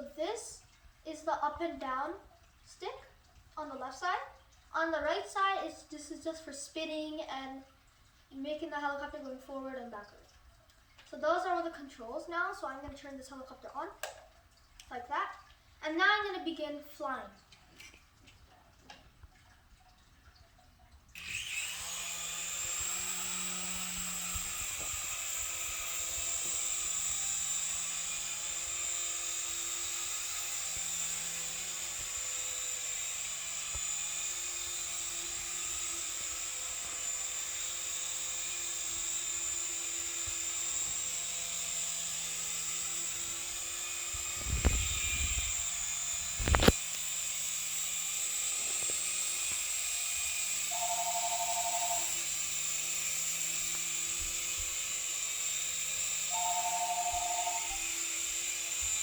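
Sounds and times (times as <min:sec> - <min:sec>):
toy helicopter motors whining: 0:21.2 - 0:59.0.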